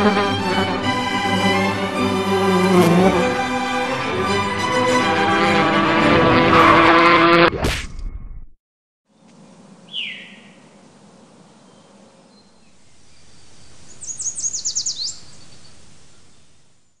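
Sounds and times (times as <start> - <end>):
bird calls: 9.2 - 17.0.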